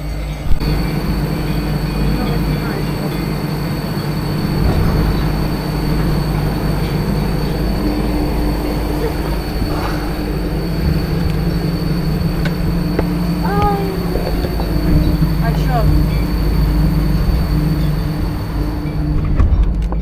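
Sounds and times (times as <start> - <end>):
faint high whine: 0.0 - 20.0
rail vehicle running hum: 0.0 - 20.0.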